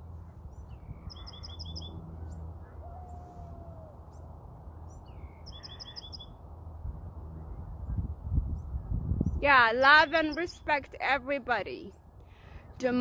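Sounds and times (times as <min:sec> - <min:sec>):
small songbird chirping: 0:00.4 - 0:02.5, 0:04.1 - 0:06.4, 0:07.4 - 0:10.7.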